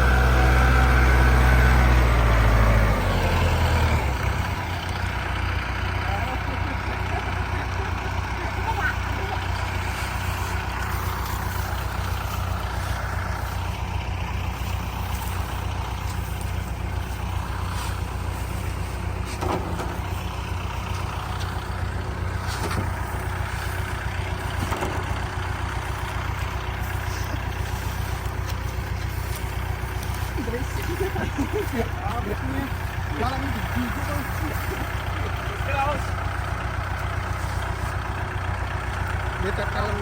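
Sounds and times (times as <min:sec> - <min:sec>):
harvester engine droning: 0:00.0 - 0:40.0.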